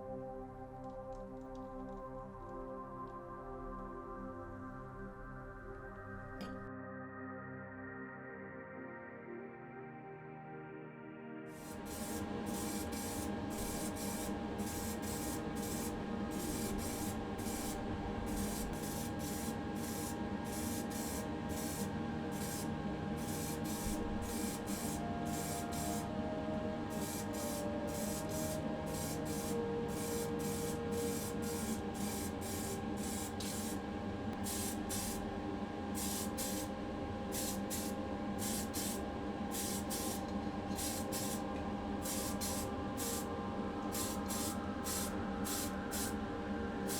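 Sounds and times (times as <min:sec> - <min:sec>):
spray paint hissing in bursts: 0:11.6 - 0:26.1, 0:26.9 - 0:33.8, 0:34.4 - 0:35.3, 0:36.0 - 0:36.7, 0:37.3 - 0:43.3, 0:43.9 - 0:46.2
steady hum with held tones: 0:11.6 - 0:46.9.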